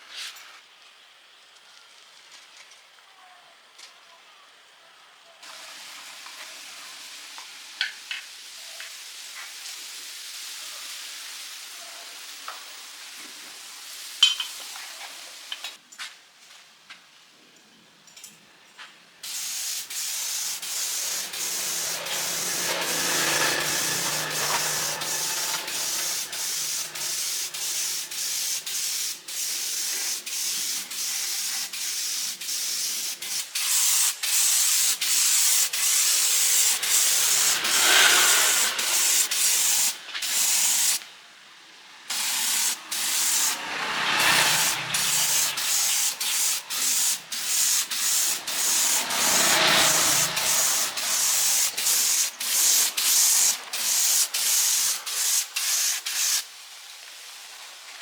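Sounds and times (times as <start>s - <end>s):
hissing rasping noise: 19.3s - 29.2s, 35.7s - 41.0s, 42.1s - 55.5s.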